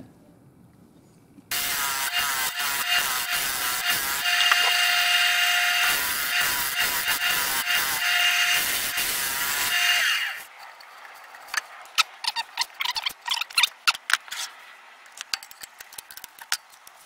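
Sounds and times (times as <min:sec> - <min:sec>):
turning tool cutting wood: 0:01.5 - 0:10.5
wood lathe motor whine: 0:01.5 - 0:10.5.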